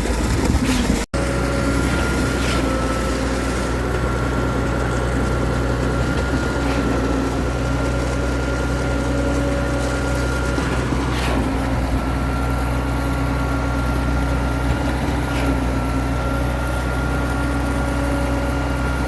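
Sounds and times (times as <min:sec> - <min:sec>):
vehicle engine droning: 0:00.0 - 0:19.0.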